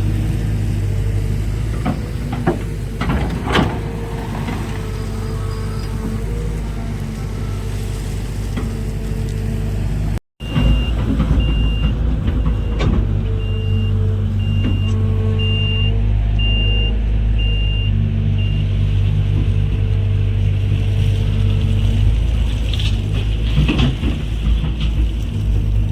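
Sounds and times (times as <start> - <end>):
diesel machinery running: 0.0 - 25.9
reversing alarm beeps: 10.4 - 18.7.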